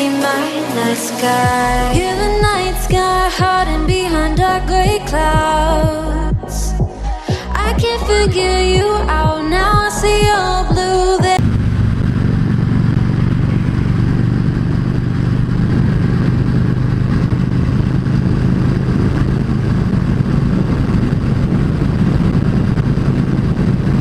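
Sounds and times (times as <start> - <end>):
motorcycle engine cruising: 11.2 - 24.0.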